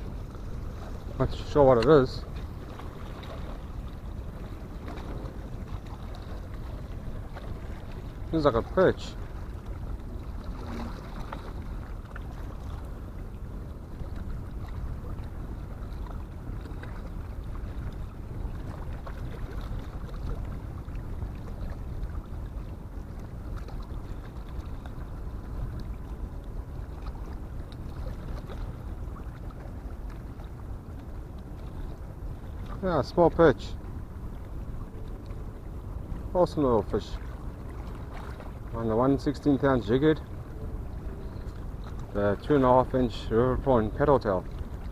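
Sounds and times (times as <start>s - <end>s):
wind rumble on microphone: 0.0s - 33.0s
harbour background noise: 0.0s - 44.9s.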